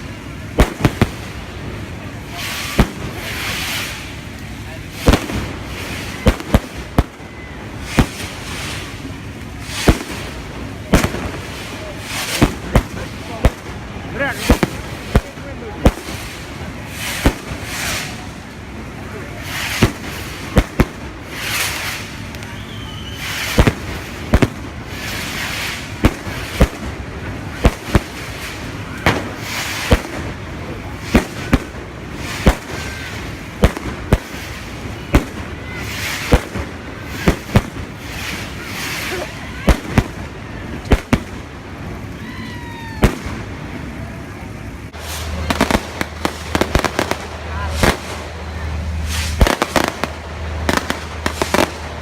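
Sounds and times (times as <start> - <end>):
fireworks bangs: 0.0 - 52.0
fireworks hissing whooshes: 0.0 - 52.0
firework whistle: 5.0 - 12.8, 19.4 - 30.3, 30.9 - 40.3.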